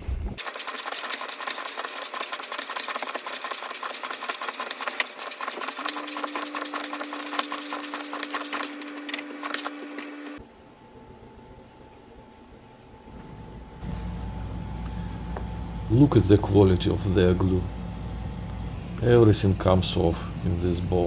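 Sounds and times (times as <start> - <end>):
air pump pulsing: 0.4 - 9.8, 13.8 - 21.0
low hum: 8.8 - 21.0.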